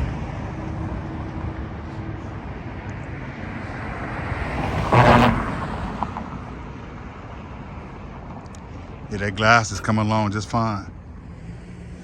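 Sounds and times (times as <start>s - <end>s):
vehicle passing close by: 0.0s - 7.6s
street traffic: 0.0s - 12.0s.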